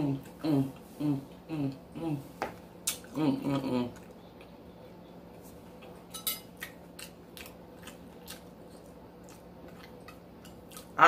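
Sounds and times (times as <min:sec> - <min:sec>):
faint steady hum: 0:00.0 - 0:11.0
close-miked chewing: 0:03.8 - 0:11.0.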